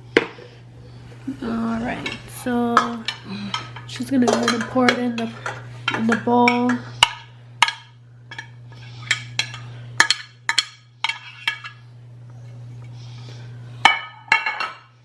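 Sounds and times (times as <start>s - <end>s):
steady low hum: 0.0s - 15.0s
utensils and dishes clinking: 1.8s - 11.8s, 13.8s - 15.0s.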